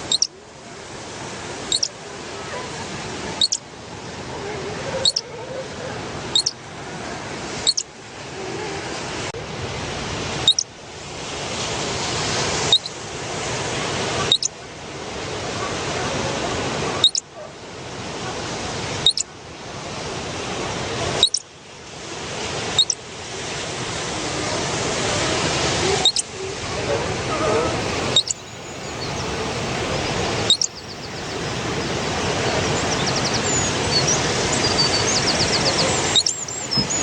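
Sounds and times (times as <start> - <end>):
flowing water rushing: 27.8 - 37.0.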